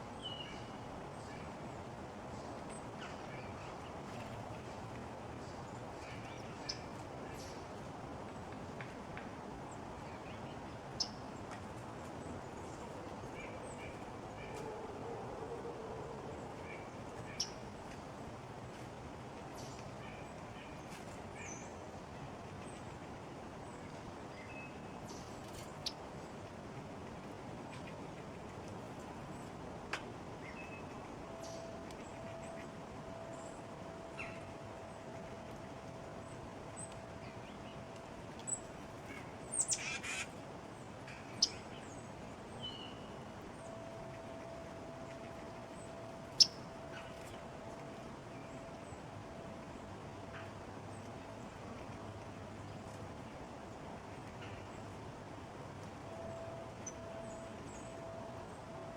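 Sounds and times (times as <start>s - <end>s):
outdoor background hiss: 0.0s - 58.9s
songbirds chirping: 30.3s - 55.0s, 56.0s - 58.9s.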